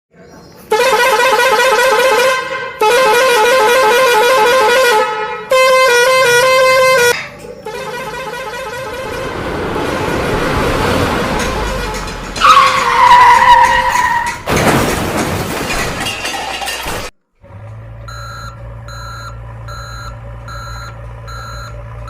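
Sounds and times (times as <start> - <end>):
rushing vehicle noise: 0.1 - 22.0
musical vehicle horn: 0.7 - 14.4.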